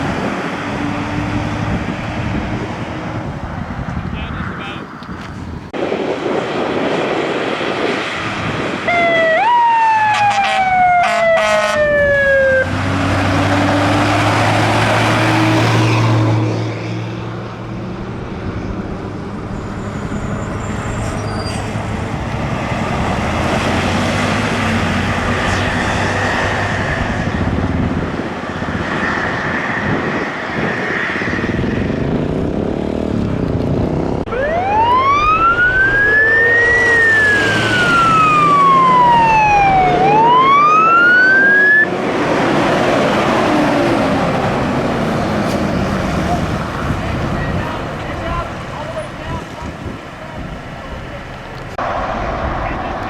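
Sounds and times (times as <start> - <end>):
truck engines and road noise: 0.0 - 53.0
fire truck siren: 8.3 - 16.6, 19.6 - 31.7, 34.3 - 53.0.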